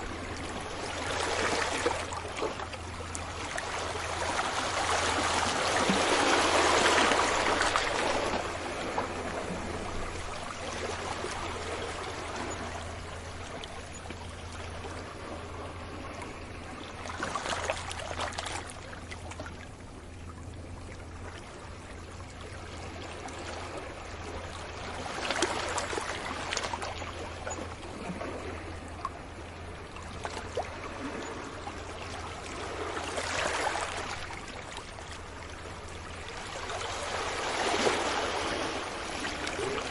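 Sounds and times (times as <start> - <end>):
sea waves breaking on beach: 0.0 - 13.6, 30.1 - 39.9.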